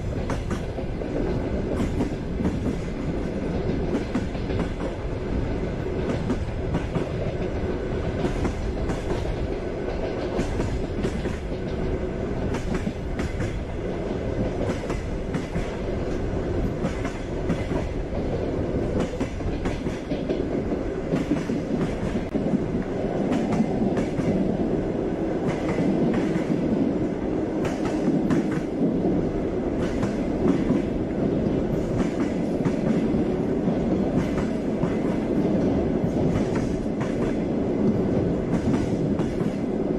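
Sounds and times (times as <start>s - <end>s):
train rumbling on track: 0.0s - 39.9s
wheels clacking over rail joints: 5.8s - 24.5s.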